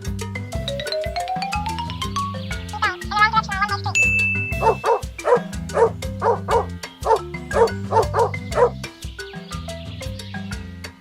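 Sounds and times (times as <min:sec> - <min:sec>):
background music with beat: 0:00.0 - 0:11.0
dog barking: 0:04.6 - 0:08.8.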